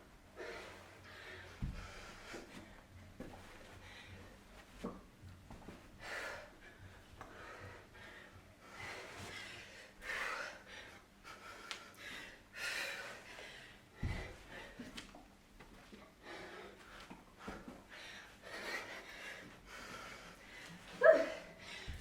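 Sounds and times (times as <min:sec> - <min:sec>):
heavy breathing: 0:00.4 - 0:04.5, 0:16.0 - 0:22.0.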